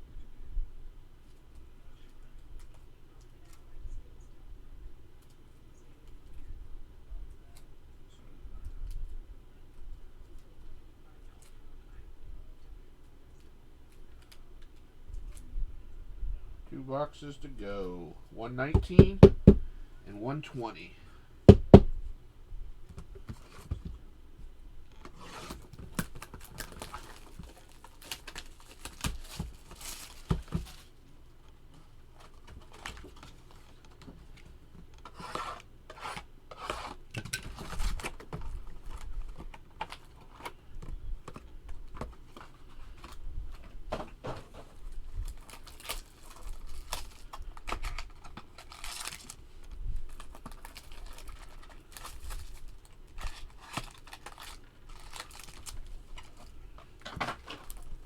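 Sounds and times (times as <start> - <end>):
cardboard and card packs rustling: 22.9 - 24.0, 24.9 - 58.0
packaging tearing and crinkling: 25.0 - 31.0, 35.0 - 40.6, 44.5 - 58.0.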